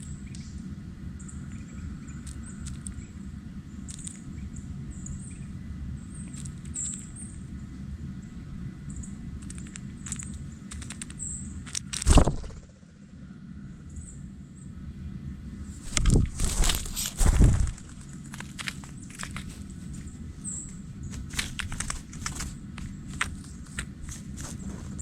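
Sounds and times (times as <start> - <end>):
low background rumble: 0.0 - 25.0
loud thump: 12.1 - 12.6.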